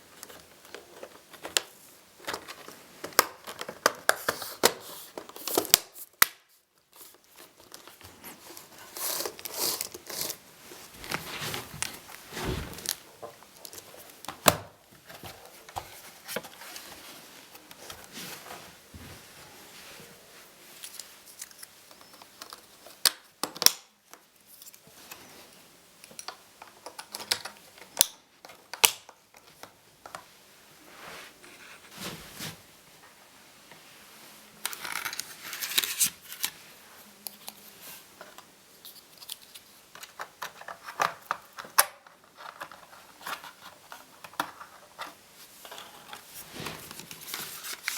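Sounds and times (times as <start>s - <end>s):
scraping and rustling: 7.0s - 14.1s, 42.2s - 47.9s.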